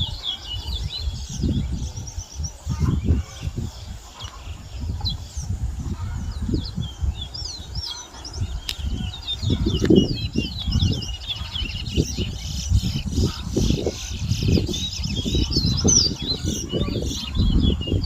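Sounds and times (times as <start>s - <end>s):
finches chirping: 0.0s - 18.0s.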